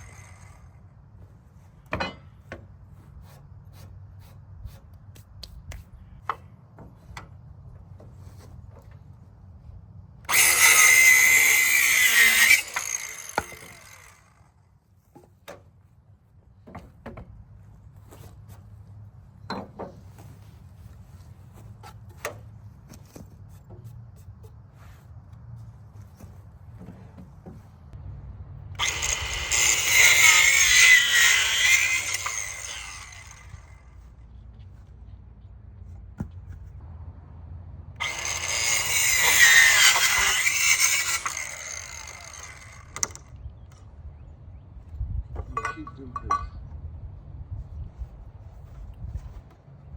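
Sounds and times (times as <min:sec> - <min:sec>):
circular saw cutting wood: 0:00.0 - 0:00.8, 0:10.3 - 0:14.5, 0:28.8 - 0:33.9, 0:38.0 - 0:43.3.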